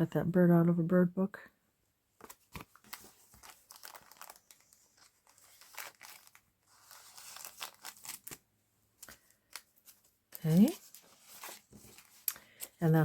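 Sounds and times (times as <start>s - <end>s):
paper rustling and crinkling: 2.2s - 8.4s, 9.0s - 12.8s.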